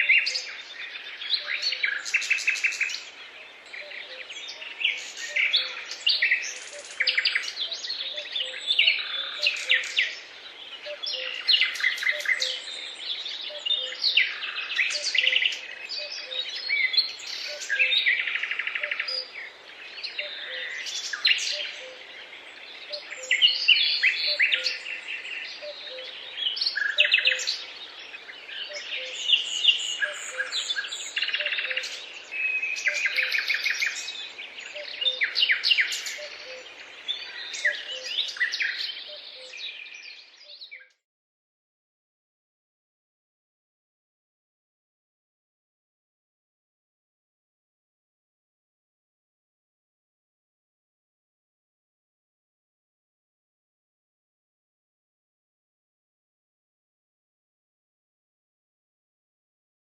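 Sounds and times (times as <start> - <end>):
songbirds singing: 0.0 - 41.0.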